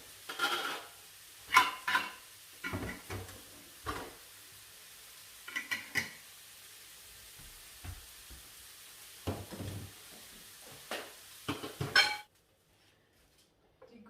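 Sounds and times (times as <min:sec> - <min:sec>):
dishes clattering: 0:00.3 - 0:00.9, 0:01.5 - 0:04.2, 0:05.5 - 0:06.2, 0:10.9 - 0:12.3.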